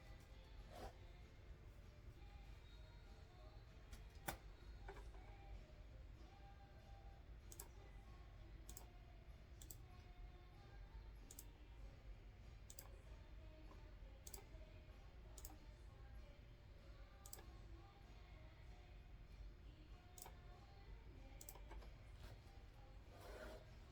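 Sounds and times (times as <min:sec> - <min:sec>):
computer mouse clicks: 0:07.5 - 0:07.7, 0:08.7 - 0:08.9, 0:09.6 - 0:09.9, 0:11.3 - 0:11.5, 0:12.7 - 0:13.0, 0:14.2 - 0:14.5, 0:15.4 - 0:15.6, 0:17.2 - 0:17.5, 0:20.2 - 0:20.4, 0:21.4 - 0:22.4.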